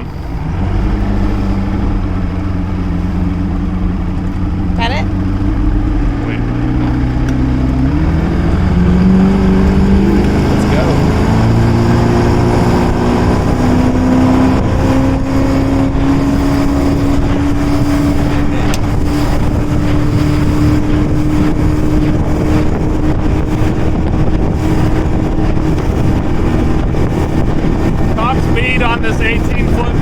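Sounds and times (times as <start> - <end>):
outboard motor accelerating: 0.0 - 30.0.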